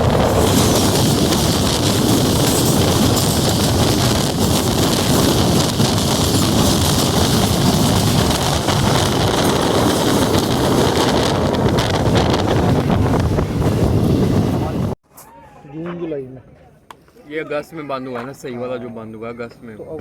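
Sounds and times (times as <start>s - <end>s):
train rushing: 0.0s - 15.0s
wind buffeting microphone: 0.0s - 15.0s.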